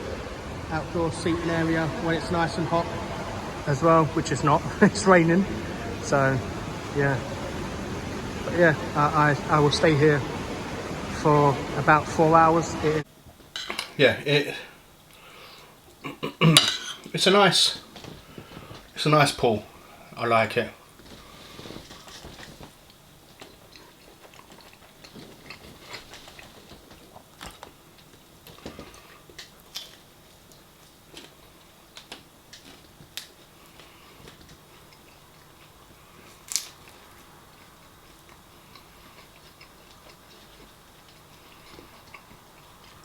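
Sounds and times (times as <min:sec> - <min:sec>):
quiet chewing: 0:13.1 - 0:43.0
cutlery clicks: 0:13.6 - 0:14.0, 0:16.5 - 0:17.2.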